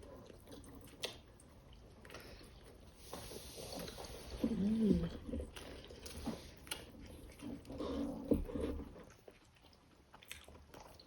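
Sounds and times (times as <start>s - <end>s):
faint chewing clicks: 0.0s - 2.7s, 9.0s - 11.0s
person humming mm while eating: 4.4s - 5.4s.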